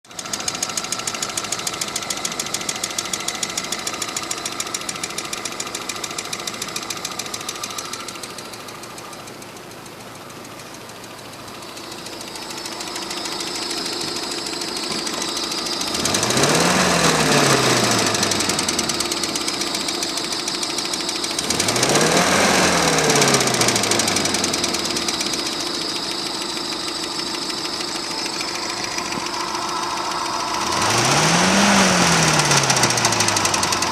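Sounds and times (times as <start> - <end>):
car engine knocking: 0.1 - 33.9
engine revving: 11.6 - 33.9.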